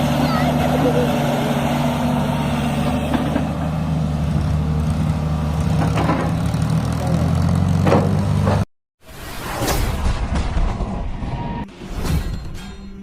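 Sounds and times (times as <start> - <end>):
tractor diesel engine running: 0.0 - 8.5.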